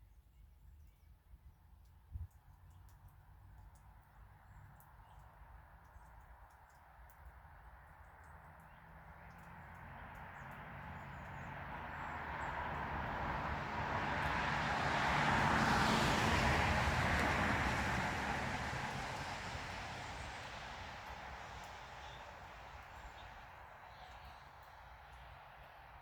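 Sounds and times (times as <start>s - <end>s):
vehicle passing by: 9.2s - 23.8s.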